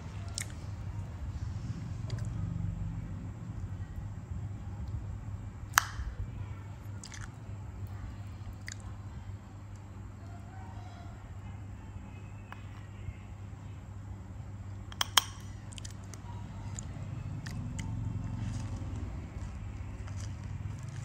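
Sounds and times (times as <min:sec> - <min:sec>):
person chewing food: 0:00.1 - 0:00.8, 0:07.0 - 0:07.4, 0:08.5 - 0:08.9, 0:15.0 - 0:21.0.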